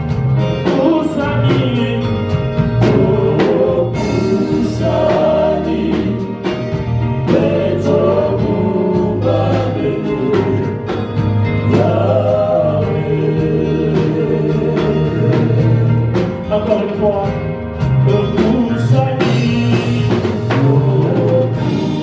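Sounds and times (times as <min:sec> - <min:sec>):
band with drum beat and bass: 0:00.0 - 0:22.0
voices singing together: 0:00.7 - 0:16.8, 0:18.1 - 0:22.0.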